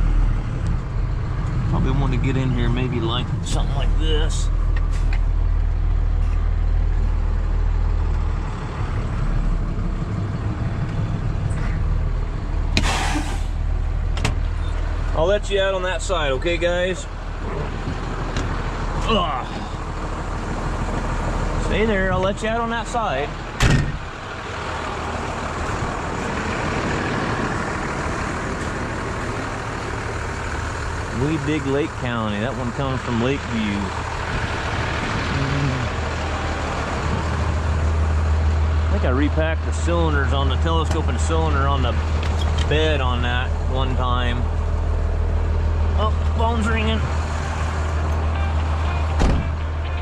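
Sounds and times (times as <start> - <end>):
truck engine running: 0.0 - 50.0
short hiss: 12.8 - 13.6.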